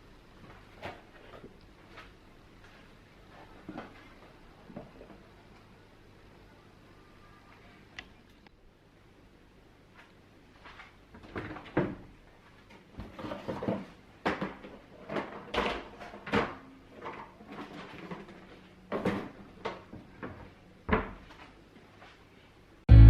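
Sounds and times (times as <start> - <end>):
objects knocking and clattering: 12.8 - 21.2.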